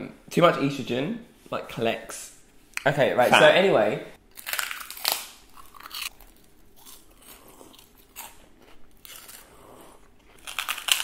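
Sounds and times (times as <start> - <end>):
prawn crackers crunching: 4.3 - 11.0.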